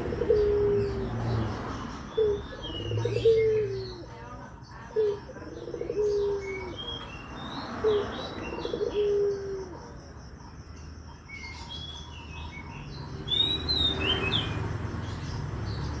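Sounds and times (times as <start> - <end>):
dove cooing: 0.0 - 10.0
small birds chirping: 0.0 - 16.0.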